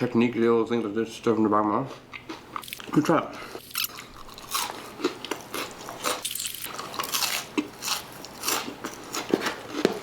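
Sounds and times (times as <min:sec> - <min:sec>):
crunchy chewing: 0:03.6 - 0:10.0.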